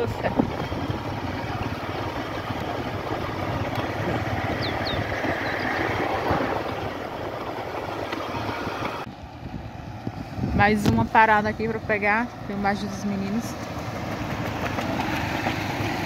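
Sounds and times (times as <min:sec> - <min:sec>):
vehicle engine running: 0:00.0 - 0:16.0
wind and road noise: 0:00.0 - 0:16.0.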